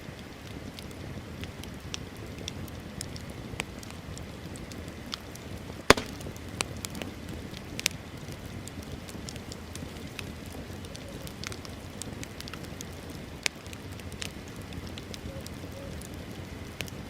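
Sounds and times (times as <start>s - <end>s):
fire crackling and popping: 0.6s - 17.0s.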